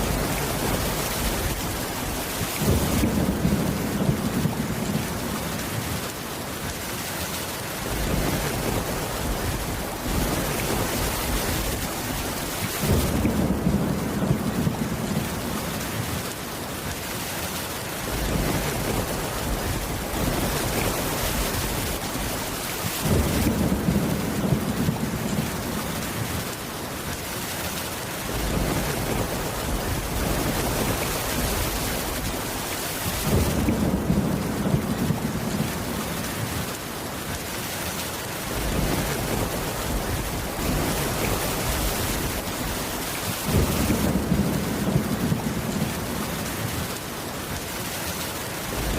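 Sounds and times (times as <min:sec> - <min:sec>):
low rumble of thunder: 0:00.0 - 0:06.2, 0:07.8 - 0:16.3, 0:18.0 - 0:26.6, 0:28.3 - 0:36.8, 0:38.5 - 0:47.0
heavy rain on a wooden roof: 0:00.0 - 0:48.9.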